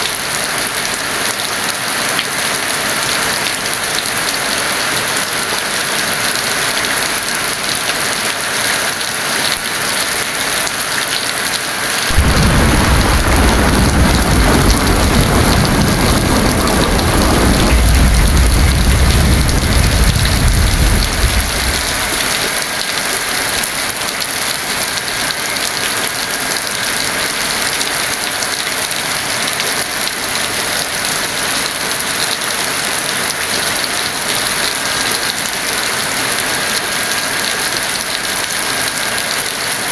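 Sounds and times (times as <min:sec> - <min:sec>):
heavy rain: 0:00.0 - 0:39.9
thunder rumbling: 0:12.1 - 0:22.6.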